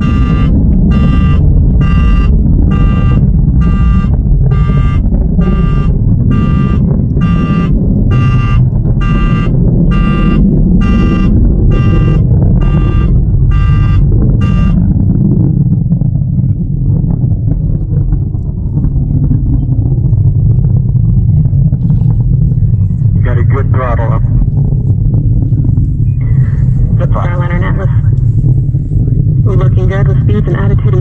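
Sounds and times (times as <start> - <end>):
electronic alarm beeping: 0.0 - 14.9
rocket rumble: 0.0 - 31.0.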